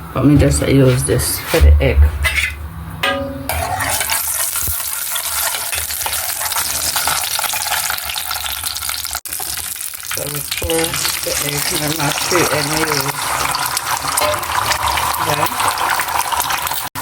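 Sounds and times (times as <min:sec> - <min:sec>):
oil sizzling in a frying pan: 0:03.8 - 0:16.9.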